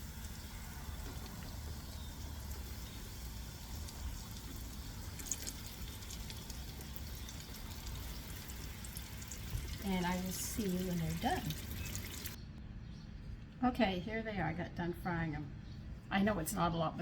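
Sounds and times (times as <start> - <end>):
food frying in hot oil: 0.0 - 12.4.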